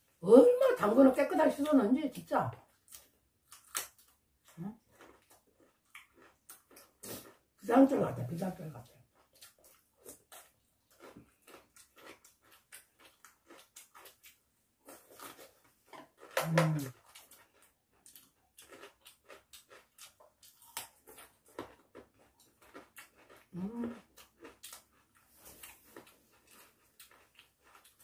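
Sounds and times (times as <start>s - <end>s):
carrot crunching while chewed: 2.6s - 7.6s, 9.0s - 28.0s
mouth sounds: 16.4s - 17.0s.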